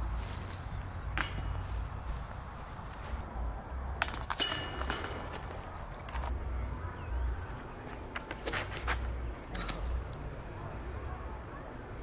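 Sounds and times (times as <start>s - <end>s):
metal chains jingling: 4.0s - 6.3s.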